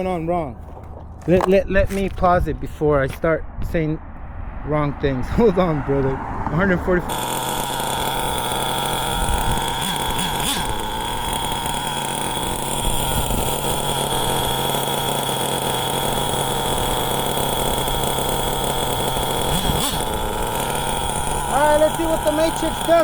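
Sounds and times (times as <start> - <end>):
nitro engine idling: 5.8 - 23.0.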